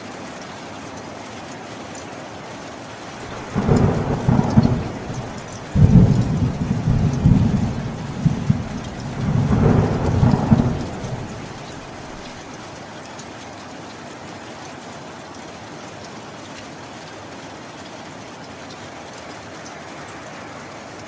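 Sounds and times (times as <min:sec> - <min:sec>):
steady rain: 0:00.0 - 0:21.0
thunder rumbling: 0:03.2 - 0:12.5.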